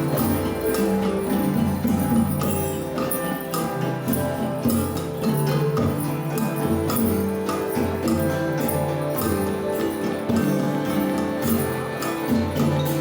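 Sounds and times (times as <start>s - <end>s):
jingling percussion: 0.0s - 13.0s.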